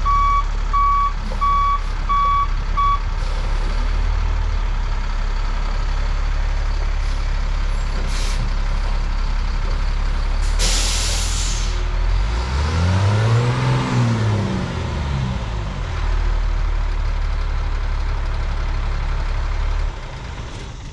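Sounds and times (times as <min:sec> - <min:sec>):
heavy truck engine drone: 0:00.0 - 0:20.9
air release hiss: 0:10.6 - 0:11.8.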